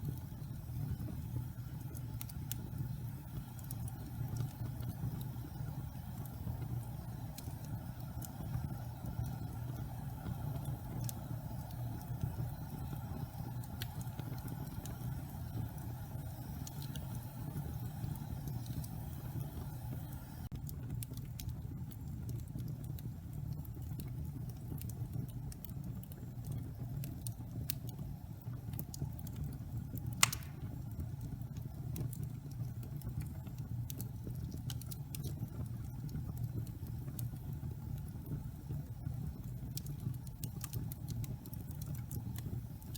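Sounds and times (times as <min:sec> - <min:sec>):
fire crackling: 0:00.0 - 0:42.9
wood fire rumbling: 0:00.0 - 0:42.9
sharp loud pop: 0:30.2 - 0:30.6.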